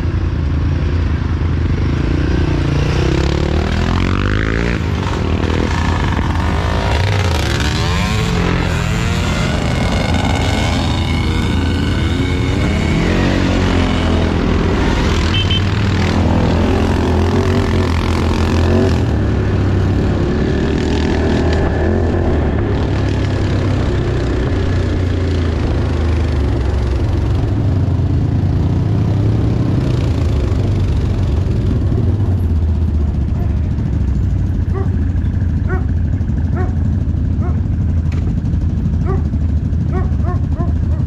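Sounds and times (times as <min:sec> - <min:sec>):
off-road vehicle engine revving: 0:01.7 - 0:34.0.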